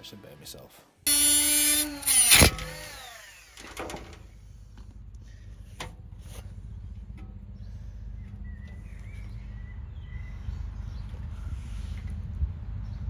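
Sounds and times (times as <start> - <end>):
angle grinder running and winding down: 1.1 - 3.8.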